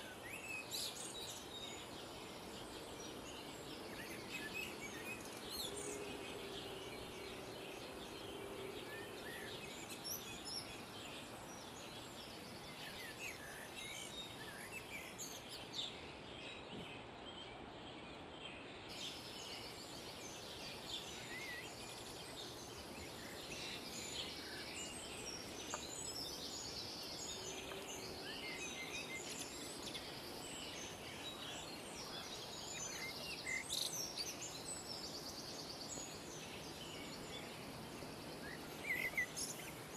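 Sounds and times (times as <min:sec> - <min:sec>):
background hiss: 0:00.0 - 0:39.9
songbirds chirping: 0:00.0 - 0:39.9.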